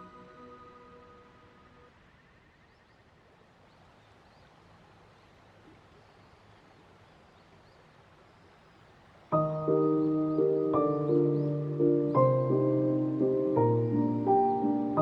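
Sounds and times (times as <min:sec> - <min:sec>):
soft steady rush: 0:00.0 - 0:15.0
faint high bird chirps: 0:09.4 - 0:15.0.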